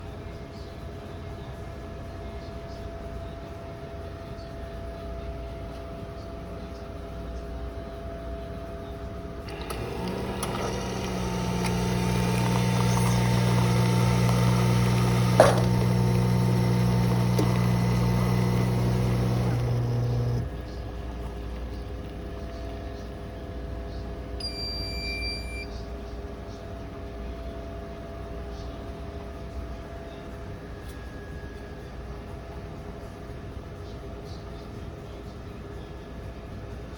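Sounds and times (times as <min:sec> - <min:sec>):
coffee machine humming: 0:09.4 - 0:23.3, 0:24.4 - 0:25.7
short electronic beep: 0:24.4 - 0:25.7.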